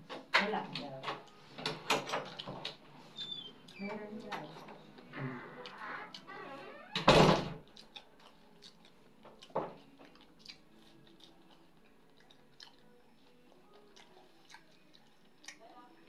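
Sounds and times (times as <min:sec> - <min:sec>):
quiet chewing: 0:00.7 - 0:06.4, 0:07.6 - 0:16.0
lip clicks: 0:13.8 - 0:15.6.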